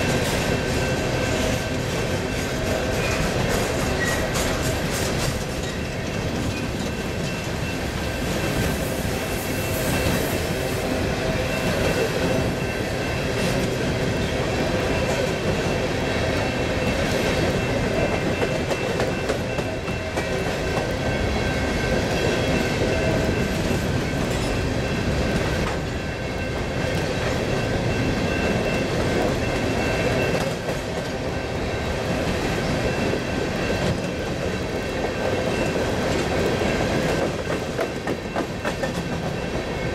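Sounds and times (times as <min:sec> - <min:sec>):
wheels clicking over rail joints: 0:00.0 - 0:08.6
freight train cars rumbling past: 0:00.0 - 0:39.9.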